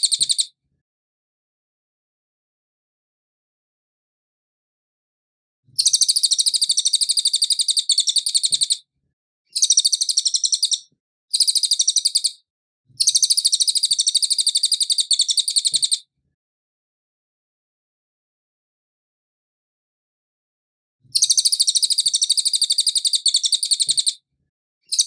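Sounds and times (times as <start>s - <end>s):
bird singing rapid high trills: 5.8s - 8.8s, 9.6s - 10.8s, 11.4s - 12.4s.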